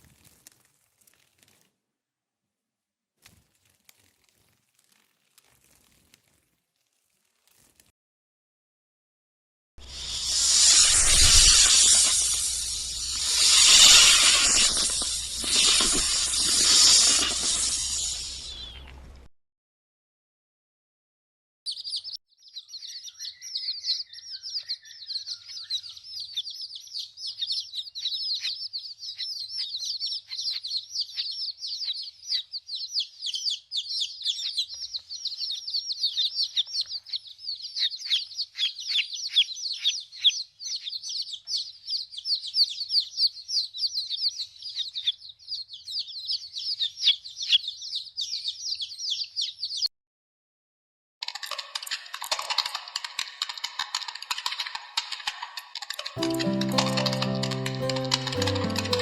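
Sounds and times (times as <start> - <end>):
small birds chirping: 9.9 - 19.1, 21.7 - 49.9.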